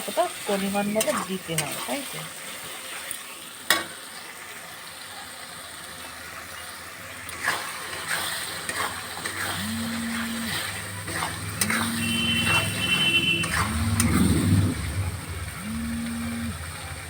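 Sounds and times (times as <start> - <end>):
onions frying in a pan: 0.0 - 17.0
spatula scraping pan: 0.6 - 2.0, 7.3 - 15.2
low held hum: 9.5 - 17.0.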